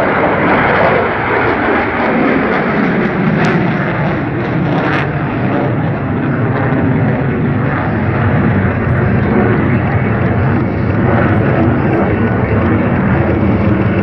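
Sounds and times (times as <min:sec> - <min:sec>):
fighter jet engine roar: 0:00.0 - 0:14.0.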